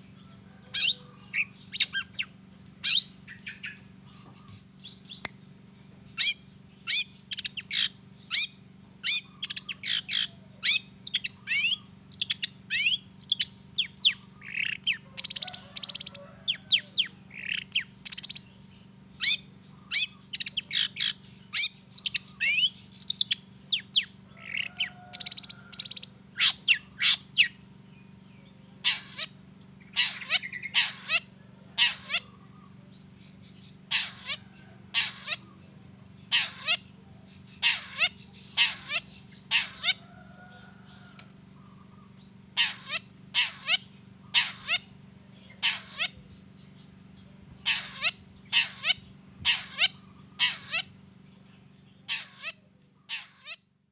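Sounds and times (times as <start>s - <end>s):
harsh rasping bird calls: 0.0s - 53.8s
shrike singing chirps and whistles: 6.2s - 16.2s, 16.8s - 18.6s, 19.2s - 27.6s.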